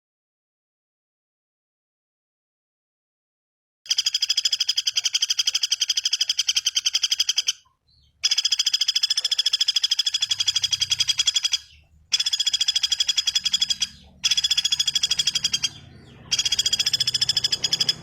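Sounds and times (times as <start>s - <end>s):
bird trilling: 3.9s - 18.0s.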